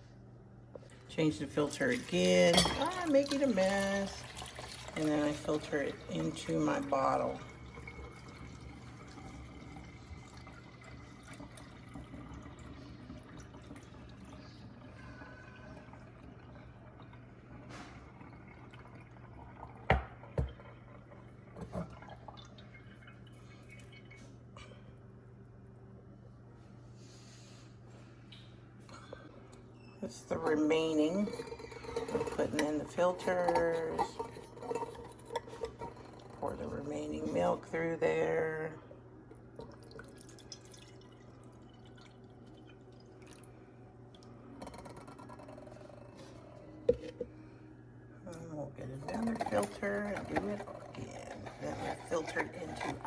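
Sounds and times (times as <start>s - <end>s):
milk dripping through filter: 1.5s - 24.7s, 39.4s - 47.4s.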